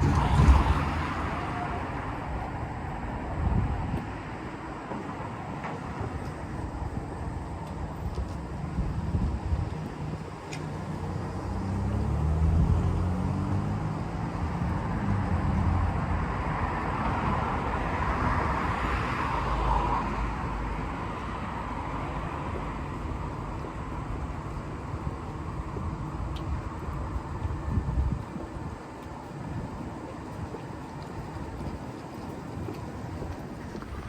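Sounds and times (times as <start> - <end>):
car passing: 0.0 - 3.3, 10.0 - 27.8
wind on the microphone: 0.0 - 34.0.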